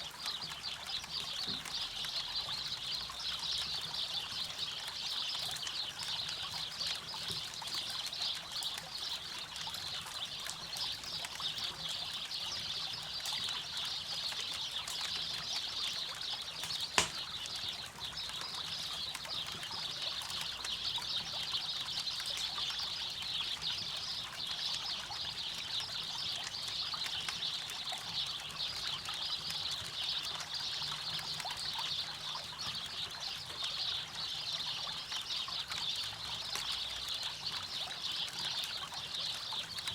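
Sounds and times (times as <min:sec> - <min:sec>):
campfire crackling: 0:14.8 - 0:17.9
loud pop from fire: 0:16.6 - 0:17.2.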